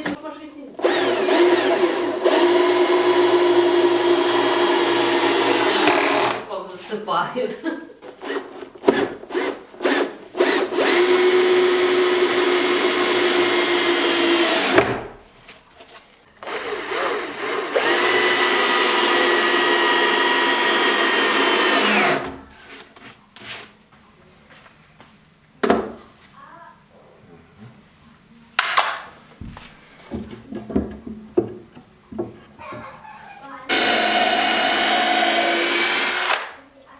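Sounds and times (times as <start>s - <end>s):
power drill running: 0.8s - 6.5s, 8.0s - 15.1s, 16.4s - 22.4s, 33.7s - 36.6s.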